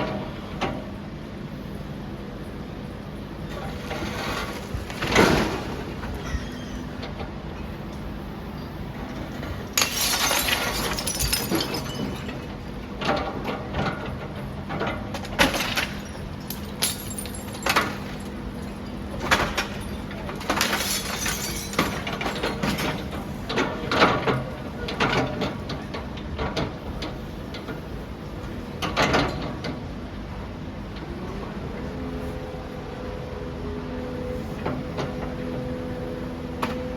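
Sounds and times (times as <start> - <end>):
demolition machinery engine hum: 0.0 - 36.9
falling debris: 9.7 - 12.6, 15.3 - 22.7
breaking glass crashes: 9.8 - 12.5, 15.4 - 18.2, 19.4 - 22.7.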